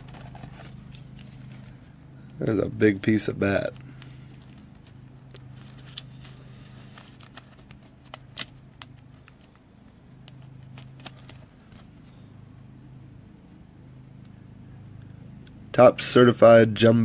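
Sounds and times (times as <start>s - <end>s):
steady low hum: 0.0s - 17.0s
cards and plastic holders clicking: 3.6s - 12.2s.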